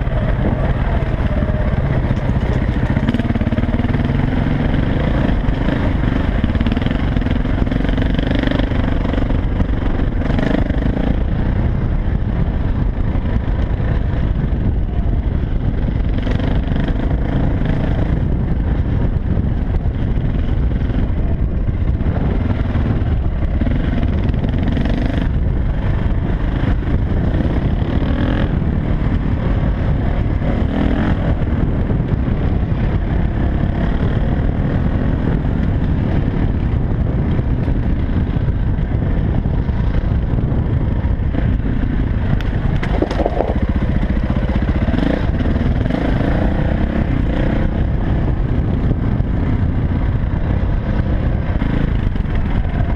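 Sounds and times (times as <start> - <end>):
dirt bike engine revving: 0.0 - 11.4, 41.3 - 49.5.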